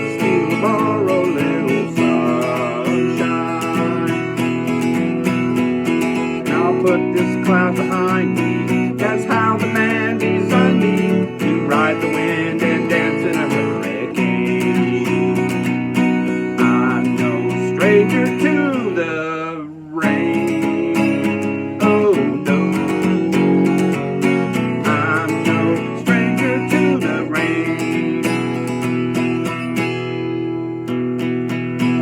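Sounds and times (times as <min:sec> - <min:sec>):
acoustic guitar strummed and picked: 0:00.0 - 0:32.0.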